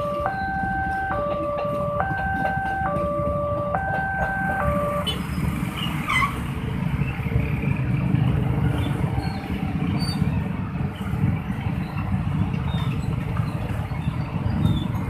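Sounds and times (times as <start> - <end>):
level crossing alarm: 0.0 - 5.3
road traffic rumble: 0.0 - 15.0.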